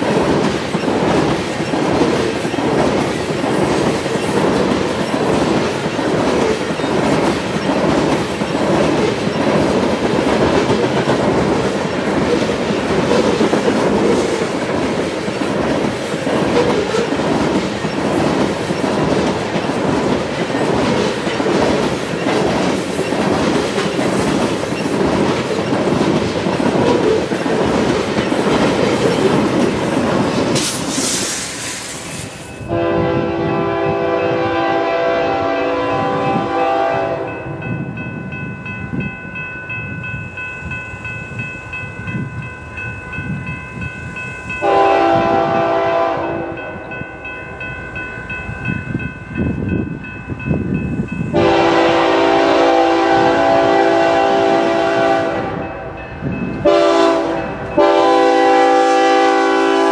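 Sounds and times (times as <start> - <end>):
wheels clacking over rails: 0.0 - 31.2
locomotive horn chord: 32.7 - 37.4, 44.6 - 46.8, 51.3 - 56.0, 56.6 - 59.9.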